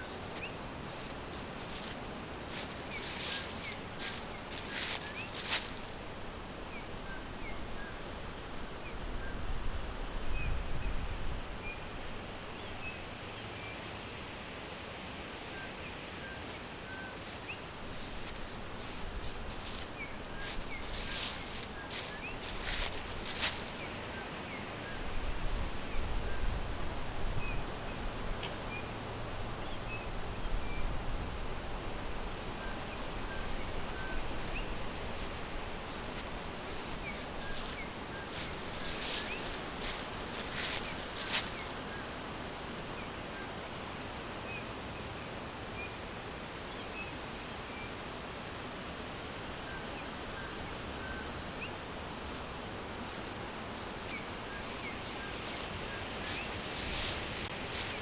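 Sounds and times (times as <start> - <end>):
small birds chirping: 0.0 - 6.2, 16.3 - 24.2, 32.6 - 42.2, 49.8 - 58.0
crisp rustles and clicks: 0.0 - 6.3, 16.3 - 24.1, 33.4 - 42.2, 50.6 - 58.0
steady forest hiss: 0.0 - 58.0.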